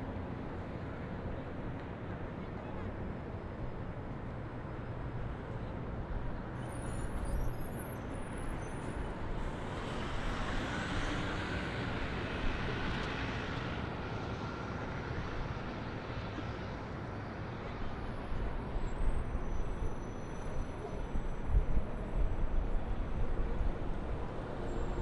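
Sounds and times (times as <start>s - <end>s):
road traffic hum: 0.0s - 25.0s.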